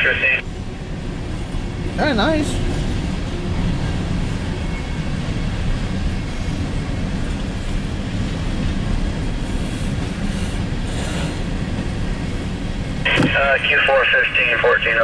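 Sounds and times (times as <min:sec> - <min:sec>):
steel wheels on rail: 0:02.4 - 0:13.0.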